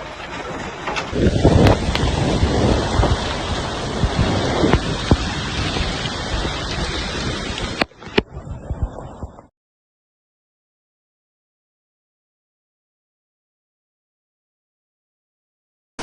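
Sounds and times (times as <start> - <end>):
floodwater rushing: 0.0 - 9.5.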